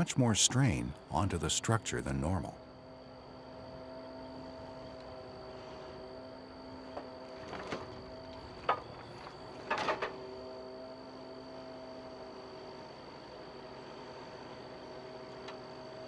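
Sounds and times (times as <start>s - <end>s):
steady hum: 0.0s - 16.0s
knocks and clatters: 8.6s - 10.2s.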